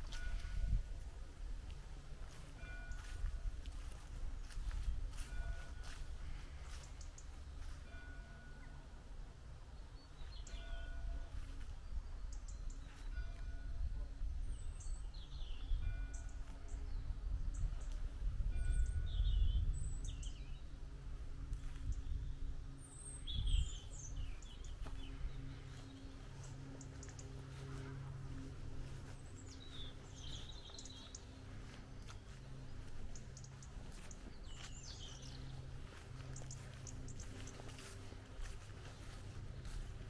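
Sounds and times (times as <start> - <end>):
outdoor background noise: 0.0 - 40.0
birds chirping and calling: 2.2 - 8.1, 22.8 - 40.0.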